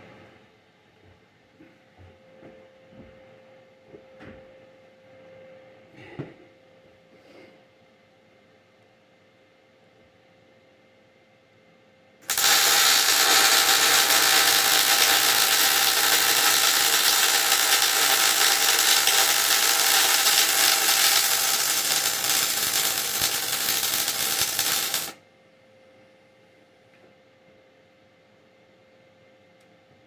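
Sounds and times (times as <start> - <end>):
welding arc crackling: 12.2 - 25.2.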